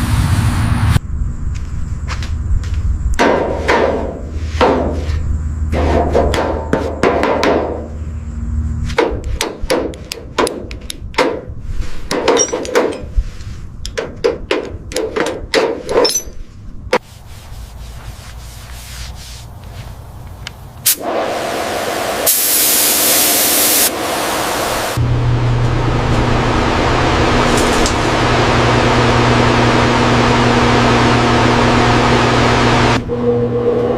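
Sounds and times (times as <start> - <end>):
sharp hammer-like knocks: 3.2 - 5.1, 5.8 - 7.9, 9.0 - 11.5
loud steady hiss: 18.5 - 25.0
motor-like hum: 21.0 - 33.9.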